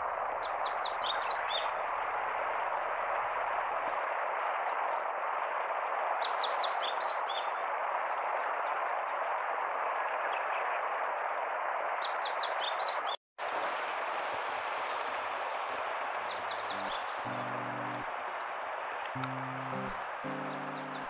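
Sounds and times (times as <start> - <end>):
small bird chirping: 16.5 - 21.0.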